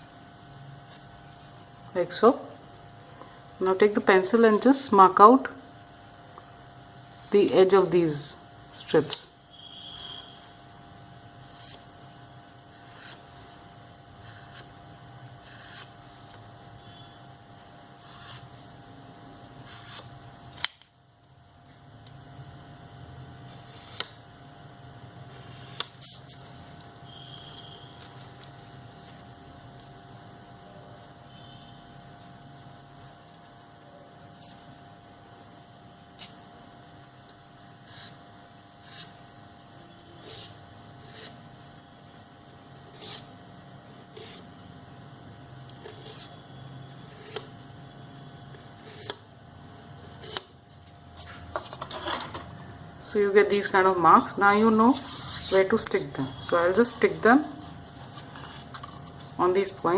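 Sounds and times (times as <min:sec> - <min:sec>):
steady low hum: 0:00.0 - 0:59.9
pencil scratching on paper: 0:15.4 - 0:15.9, 0:42.9 - 0:43.3, 0:45.8 - 0:46.4
pencil and paper handling: 0:54.8 - 0:56.0, 0:56.7 - 0:59.4.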